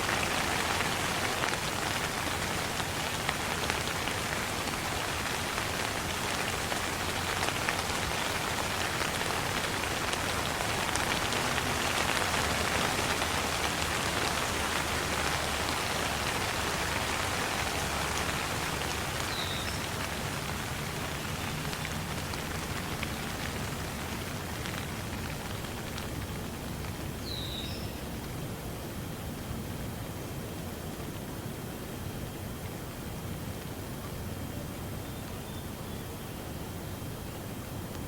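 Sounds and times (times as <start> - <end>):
rain falling: 0.0 - 38.0.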